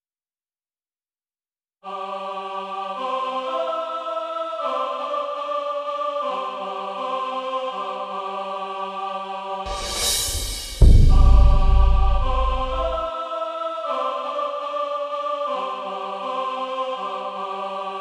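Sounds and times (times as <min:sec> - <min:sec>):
slow held chords music: 0:09.9 - 0:13.0.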